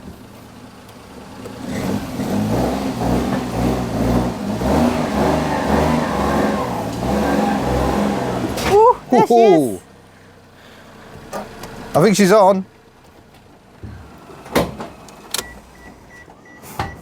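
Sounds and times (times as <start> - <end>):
car engine revving: 1.2 - 10.1.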